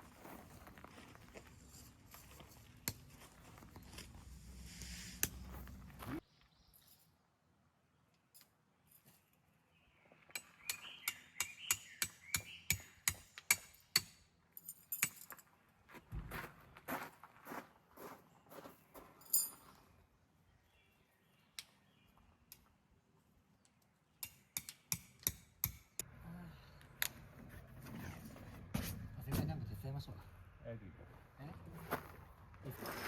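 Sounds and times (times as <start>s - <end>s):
outdoor ambience: 0.0s - 33.0s
camping gear clinking: 19.2s - 19.8s.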